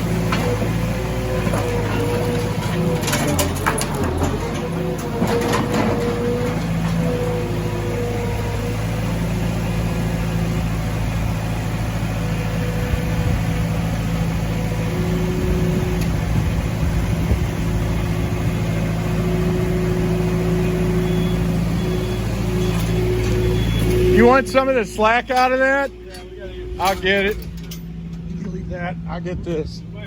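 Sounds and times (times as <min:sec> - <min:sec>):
engine droning: 0:00.0 - 0:30.0
faint higher tone: 0:19.2 - 0:27.7.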